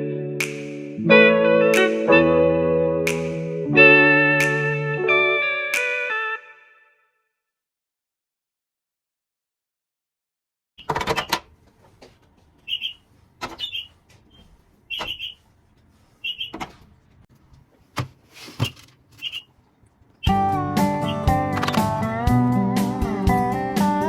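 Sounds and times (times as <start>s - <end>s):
sharp clicks and knocks: 10.8s - 12.6s, 13.4s - 15.9s, 21.5s - 21.9s
short high squeaks: 12.6s - 15.4s, 16.2s - 16.7s, 18.6s - 19.5s.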